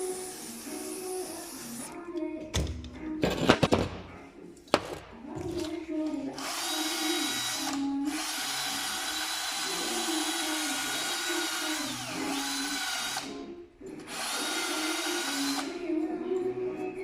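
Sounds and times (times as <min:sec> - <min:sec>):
power tool whirring: 0:00.0 - 0:01.9, 0:06.4 - 0:13.4, 0:14.0 - 0:15.8.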